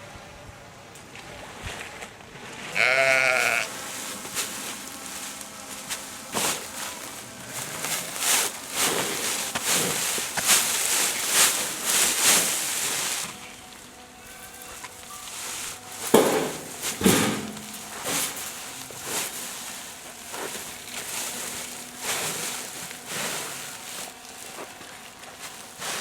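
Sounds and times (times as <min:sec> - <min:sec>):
sheep and lambs bleating: 0:02.7 - 0:08.8.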